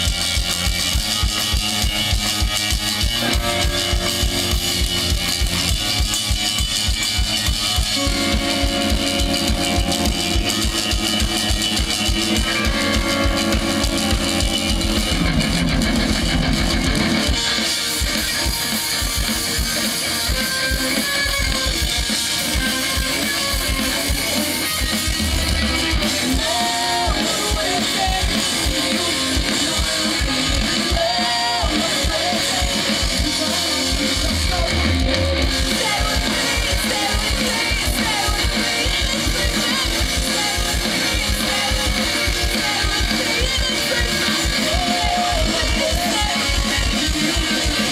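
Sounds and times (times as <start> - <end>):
live rock band: 0.0 - 47.9.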